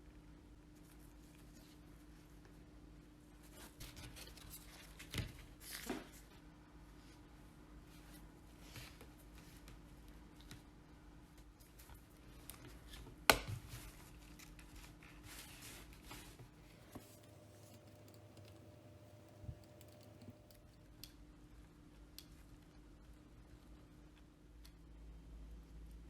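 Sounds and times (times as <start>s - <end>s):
light scratching: 16.6s - 20.7s
small ticks: 16.8s - 20.6s.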